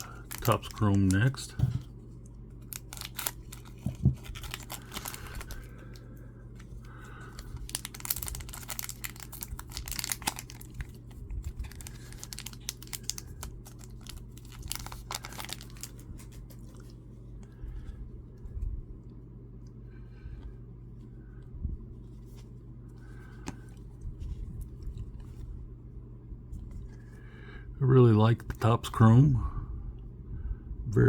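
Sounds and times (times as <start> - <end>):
foil wrapper crinkling and tearing: 0.0 - 1.6, 2.6 - 17.0
low hum: 0.0 - 31.0.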